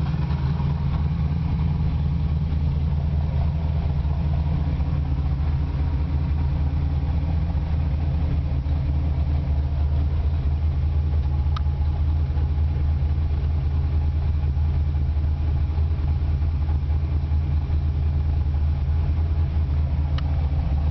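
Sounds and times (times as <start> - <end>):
car engine idling: 0.0 - 20.9
faint tick: 11.2 - 12.0, 20.1 - 20.4.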